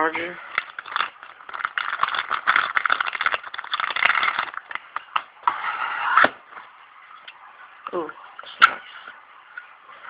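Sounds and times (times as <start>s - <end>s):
plastic packaging crinkling: 0.4s - 5.1s.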